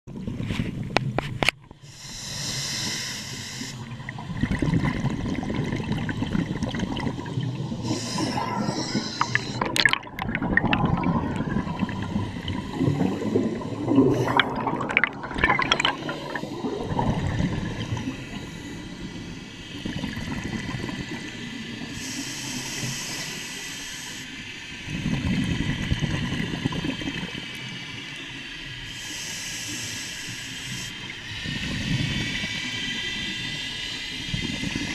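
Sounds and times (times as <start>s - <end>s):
regulator hissing on inhale: 1.8s - 4.0s, 7.7s - 9.7s, 11.8s - 14.4s, 16.0s - 20.2s, 21.0s - 24.8s, 28.7s - 34.9s
bubbling rush on exhale: 2.2s - 21.4s.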